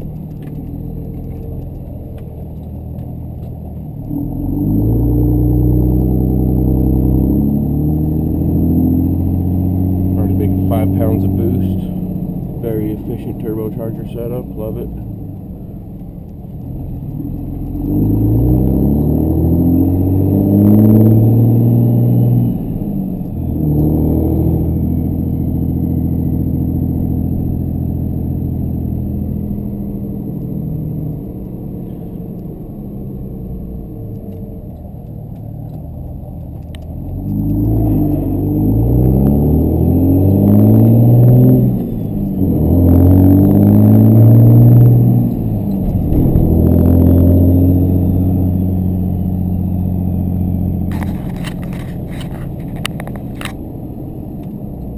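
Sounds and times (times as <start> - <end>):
diesel truck engine accelerating: 0.0 - 54.9.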